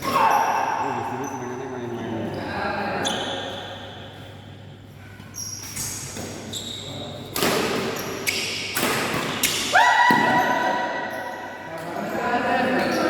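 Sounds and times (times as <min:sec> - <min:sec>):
shoes squeaking on court: 0:05.1 - 0:09.6.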